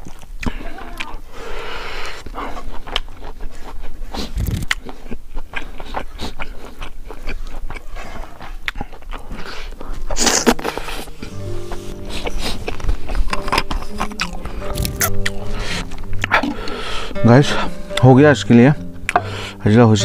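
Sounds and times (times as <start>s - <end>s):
chewing crispy food: 0.0s - 17.2s
background music: 10.5s - 20.0s.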